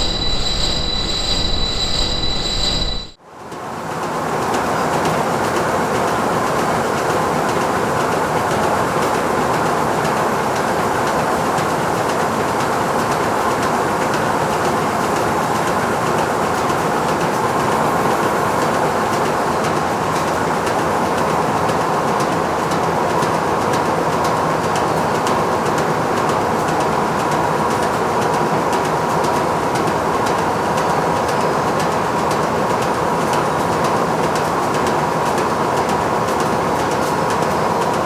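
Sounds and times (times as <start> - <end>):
factory machinery running: 0.0 - 3.2.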